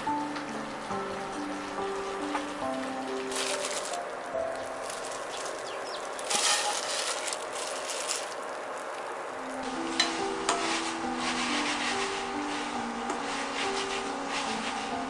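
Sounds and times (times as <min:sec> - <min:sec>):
squid sizzling in sauce: 0:04.9 - 0:15.0
stirring in a pan: 0:09.6 - 0:15.0.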